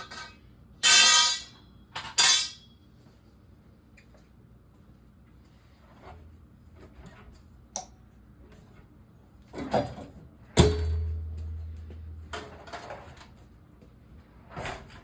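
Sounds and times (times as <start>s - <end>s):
low ringing hum: 10.0s - 13.9s.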